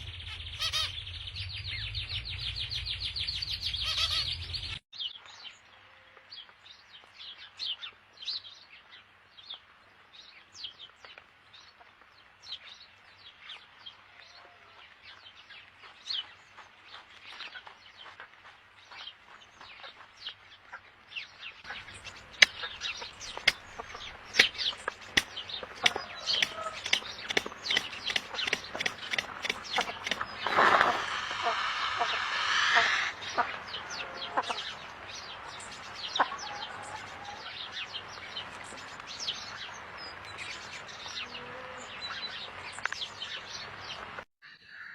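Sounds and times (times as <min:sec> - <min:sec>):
small birds chirping: 0:21.7 - 0:36.2.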